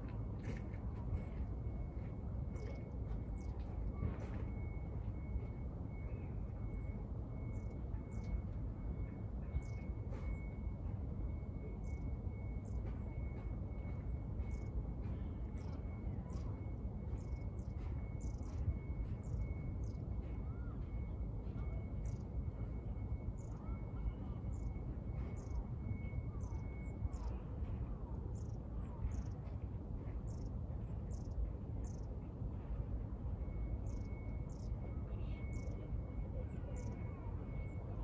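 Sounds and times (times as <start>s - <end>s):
low outdoor background rumble: 0.0s - 38.0s
small birds chirping: 15.5s - 20.1s, 22.0s - 22.3s, 28.4s - 29.5s, 30.3s - 32.1s, 33.9s - 37.7s.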